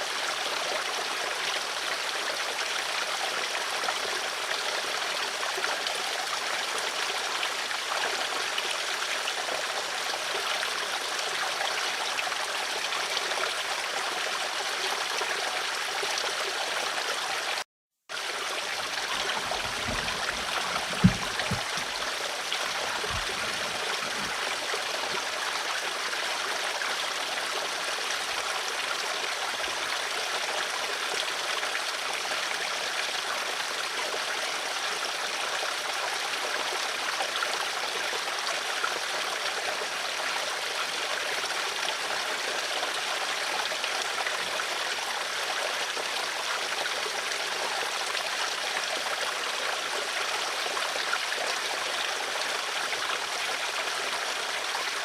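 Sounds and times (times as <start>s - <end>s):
stream flowing: 0.0s - 55.0s
low knocks: 19.0s - 22.0s, 22.6s - 24.4s.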